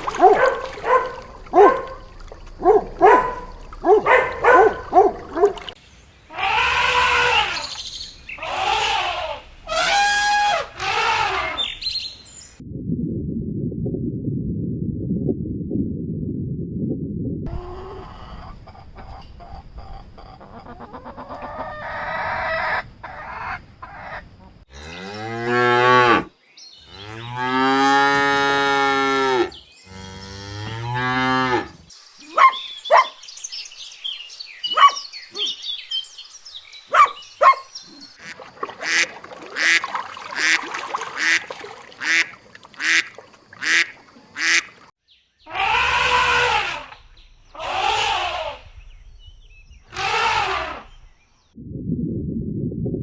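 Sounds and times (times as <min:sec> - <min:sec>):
cattle mooing: 0:00.0 - 0:05.6, 0:24.7 - 0:26.3, 0:26.9 - 0:31.8, 0:45.5 - 0:46.9
geese honking: 0:00.0 - 0:07.8, 0:08.4 - 0:11.8, 0:38.2 - 0:44.9.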